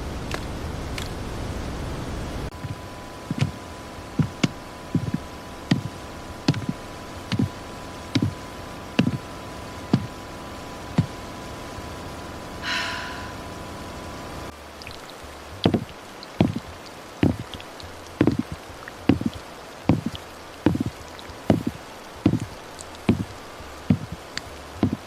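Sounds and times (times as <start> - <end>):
footsteps walking: 2.5 - 3.6, 4.2 - 5.9, 6.5 - 6.7, 7.3 - 7.5, 9.0 - 9.2, 14.8 - 25.0.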